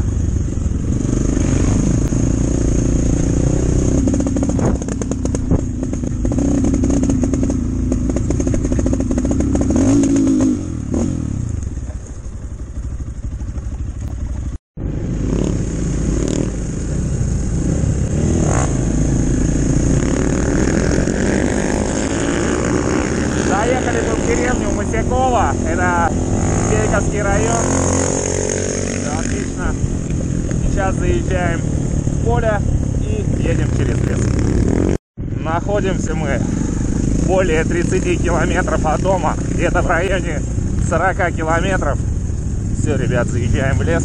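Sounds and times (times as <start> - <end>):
motorcycle engine revving: 0.0 - 44.0
motorcycle clattering over rough ground: 11.4 - 14.6.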